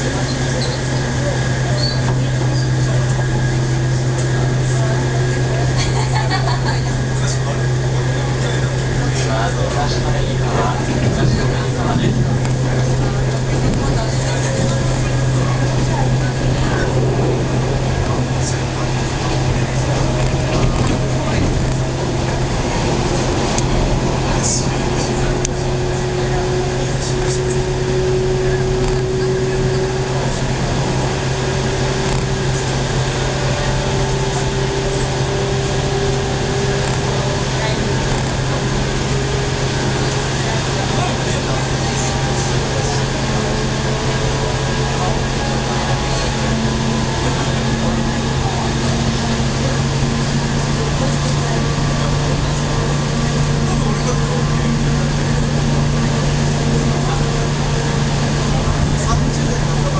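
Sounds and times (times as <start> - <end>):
train rolling rumble: 0.0 - 59.9.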